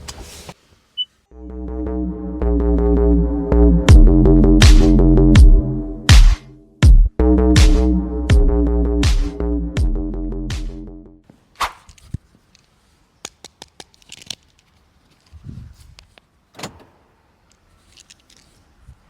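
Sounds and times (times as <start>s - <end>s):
electronic music: 1.3s - 11.2s.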